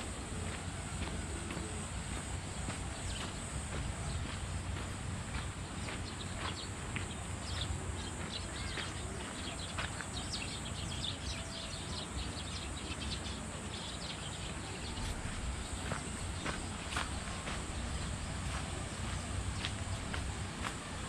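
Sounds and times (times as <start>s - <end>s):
low wind rumble: 0.0s - 9.6s
steady high hiss: 0.0s - 21.0s.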